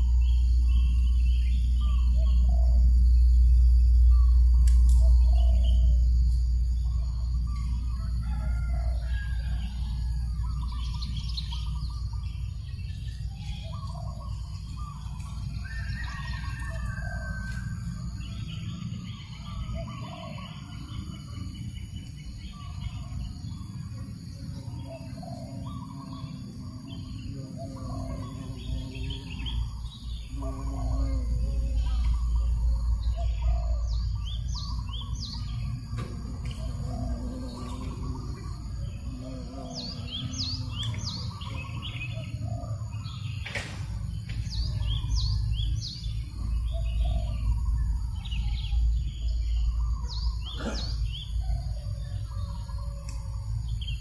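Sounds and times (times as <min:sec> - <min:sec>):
small birds chirping: 0:00.0 - 0:54.0
rooster crowing: 0:07.8 - 0:10.4, 0:36.1 - 0:42.4.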